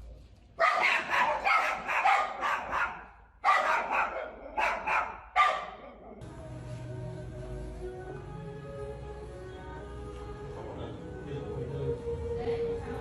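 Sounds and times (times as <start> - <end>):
dog barking: 0.6 - 6.2
music: 6.2 - 13.0.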